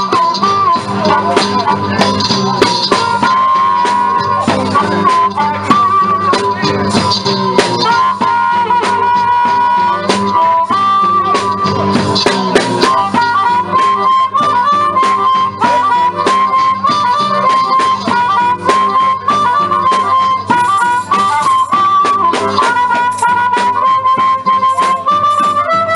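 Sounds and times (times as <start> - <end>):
blues band accompaniment: 0.0 - 25.9
harmonica solo: 0.0 - 25.9.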